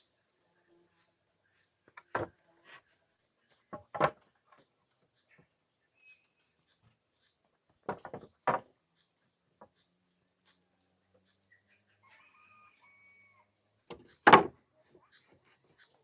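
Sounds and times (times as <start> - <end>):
wooden knocks of timber: 2.1 - 2.3, 3.7 - 4.2, 7.8 - 8.7, 13.9 - 14.6.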